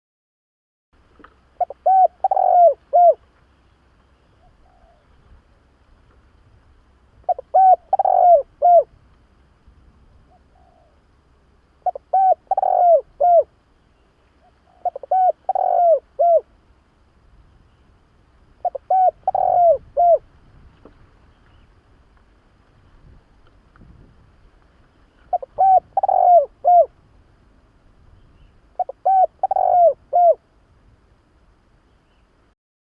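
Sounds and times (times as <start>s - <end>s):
dove cooing: 1.6s - 3.2s, 4.3s - 5.3s, 7.2s - 8.9s, 10.2s - 11.0s, 11.8s - 13.5s, 14.4s - 16.5s, 18.6s - 20.3s, 25.2s - 27.0s, 28.4s - 30.5s.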